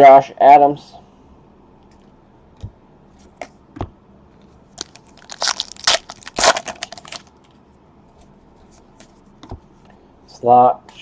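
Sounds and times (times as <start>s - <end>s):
foil wrapper crackling: 4.8s - 7.3s.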